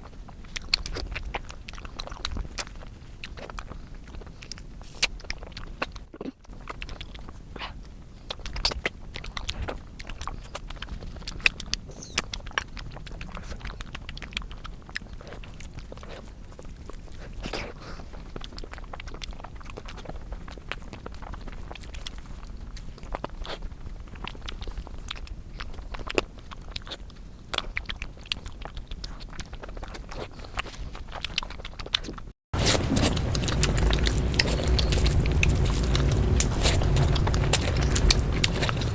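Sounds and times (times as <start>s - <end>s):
chewing and biting food: 0.0s - 38.9s
loud steady sound: 32.6s - 38.9s.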